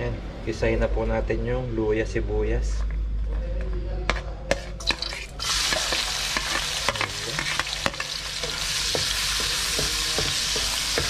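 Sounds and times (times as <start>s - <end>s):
stirring clicks and scrapes in pan: 4.5s - 11.0s
onion sizzling in hot oil: 4.8s - 11.0s.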